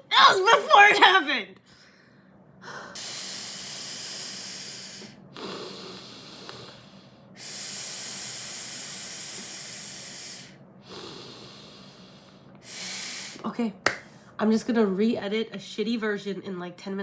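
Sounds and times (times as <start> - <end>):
woman breathing heavily: 1.7 - 13.4.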